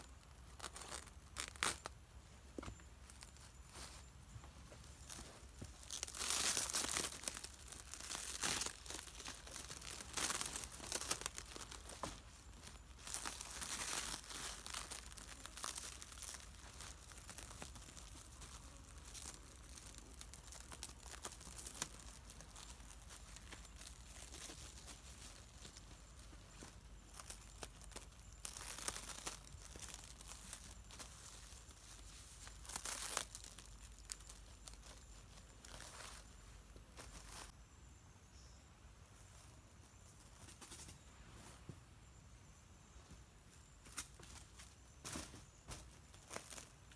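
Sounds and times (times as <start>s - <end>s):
plastic crinkling and rustling: 0.0s - 2.0s, 2.6s - 37.5s.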